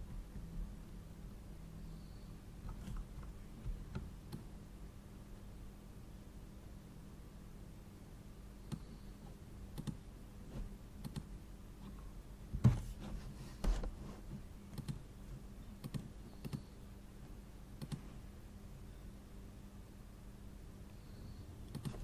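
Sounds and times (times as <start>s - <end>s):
low steady hum: 0.0s - 22.0s
computer clicks: 9.7s - 10.0s, 11.0s - 11.3s, 14.7s - 15.0s, 15.8s - 16.7s, 17.8s - 18.0s, 21.7s - 22.0s.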